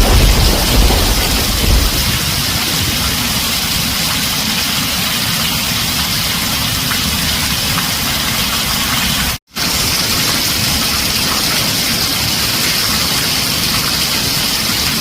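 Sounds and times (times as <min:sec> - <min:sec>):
low thunder rumble: 0:00.0 - 0:04.6
rain drumming on a tin roof: 0:00.0 - 0:15.0.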